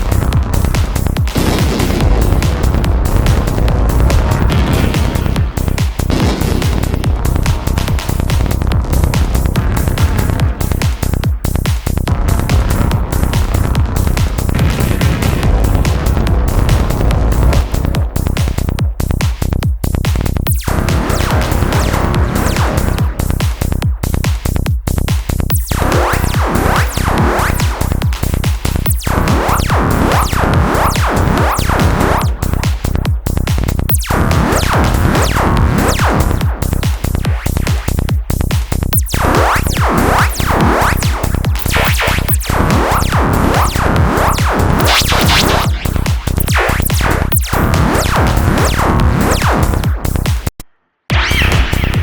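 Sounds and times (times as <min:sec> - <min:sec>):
psytrance music: 0:00.0 - 0:50.5, 0:51.1 - 0:52.0.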